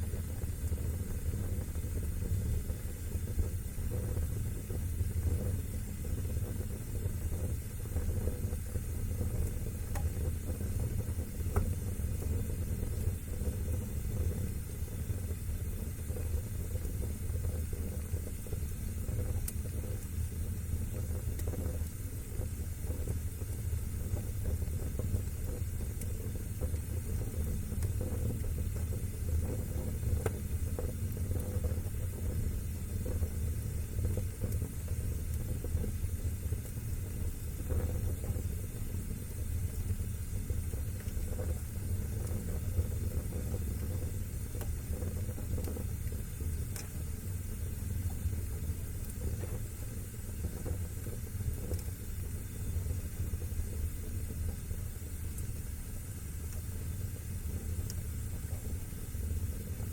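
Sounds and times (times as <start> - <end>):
fire crackling: 0.0 - 59.9
fire rumbling: 0.0 - 59.9.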